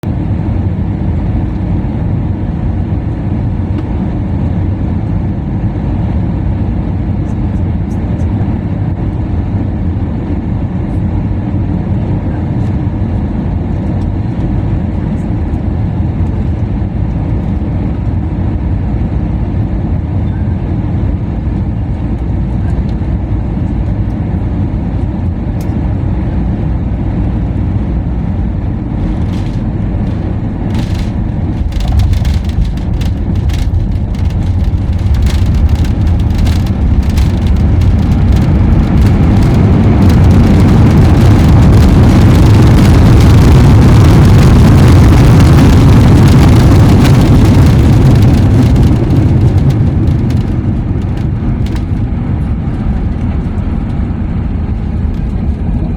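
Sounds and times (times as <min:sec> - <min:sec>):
aircraft engine and airflow rumble: 0:00.0 - 0:55.9
reverse thrust roar: 0:26.4 - 0:55.8
rattling clicks: 0:29.0 - 0:39.6.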